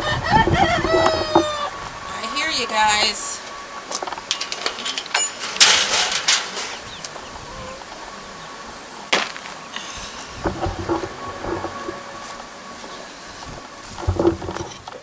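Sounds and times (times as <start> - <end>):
rattling clatter: 3.9 - 7.0, 13.8 - 15.0.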